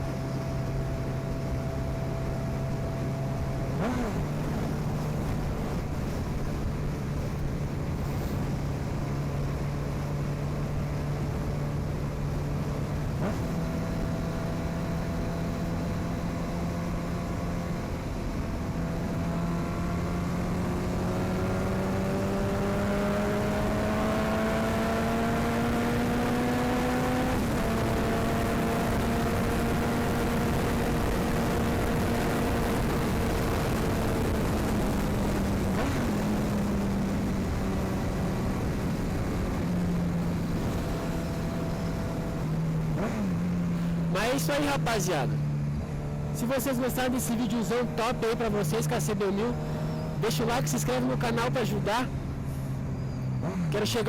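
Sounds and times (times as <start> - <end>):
motorcycle engine accelerating: 0.0 - 54.0
wind and road rush: 0.0 - 54.0.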